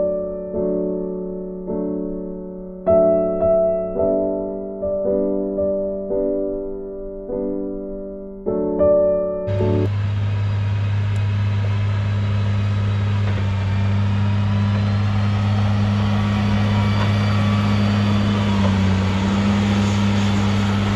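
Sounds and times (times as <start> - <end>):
piano music: 0.0 - 9.9, 14.4 - 20.9
engine-like drone: 9.5 - 20.9.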